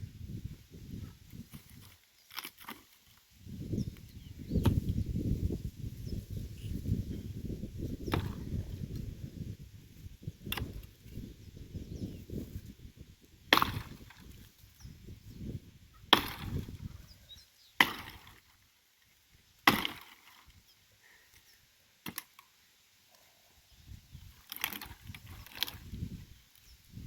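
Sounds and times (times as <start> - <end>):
axe chopping firewood: 8.0 - 8.6, 10.4 - 10.9, 13.5 - 14.4, 16.1 - 16.9, 17.8 - 18.4, 19.6 - 20.5, 22.0 - 22.4, 24.5 - 25.8.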